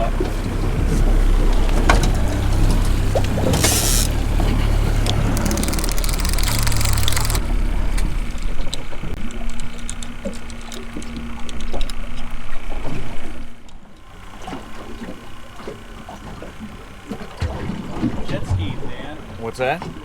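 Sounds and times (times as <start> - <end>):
water splashing: 0.0 - 7.3, 14.6 - 20.0
boat motor running: 0.0 - 20.0
steady hum: 0.4 - 13.6.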